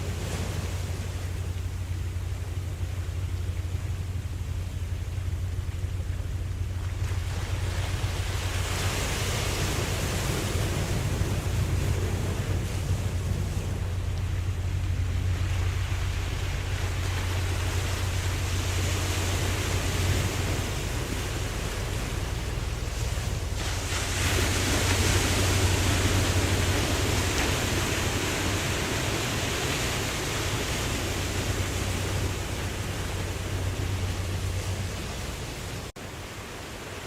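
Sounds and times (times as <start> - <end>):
ocean waves washing: 0.0 - 37.0
steady low hum: 0.0 - 37.0.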